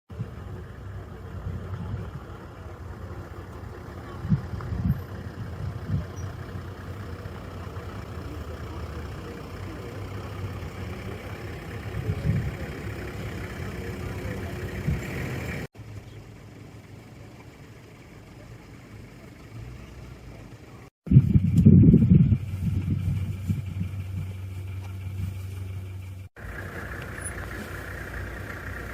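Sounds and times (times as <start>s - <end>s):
vehicle engine idling: 0.1s - 28.9s
low wind gusts: 21.0s - 25.6s.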